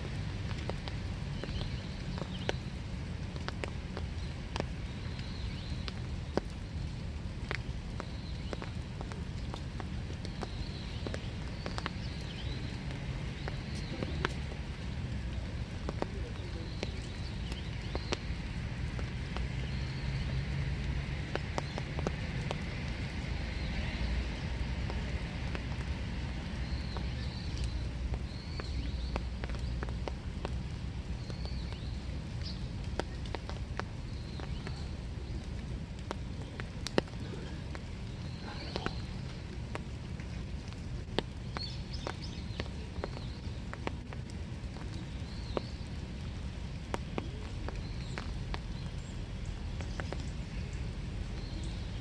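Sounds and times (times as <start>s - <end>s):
raindrops tapping close by: 0.0s - 52.0s
steady rain: 0.0s - 52.0s.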